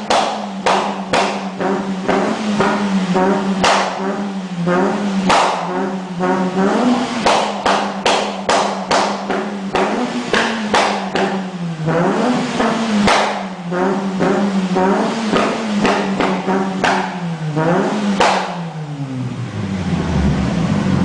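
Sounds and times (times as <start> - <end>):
sharp exhaust cracks: 0.0 - 11.7, 12.5 - 17.5
car engine at high revs: 0.0 - 21.0.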